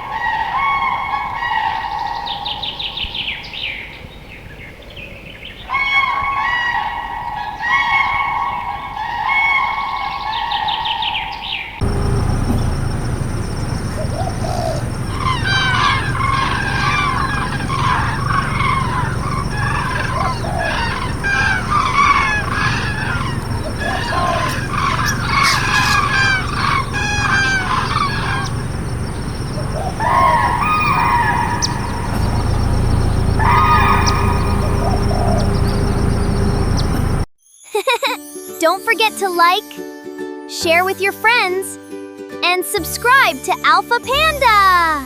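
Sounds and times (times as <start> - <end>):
cranes calling: 5.7 - 37.2
low background rumble: 11.8 - 37.3.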